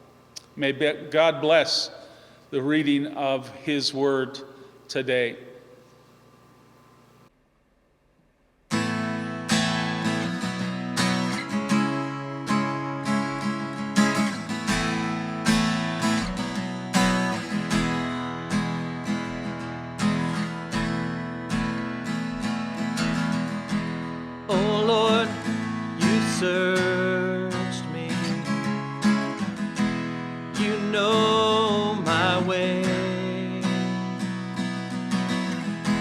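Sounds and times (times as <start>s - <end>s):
strummed acoustic guitar: 8.7s - 36.0s.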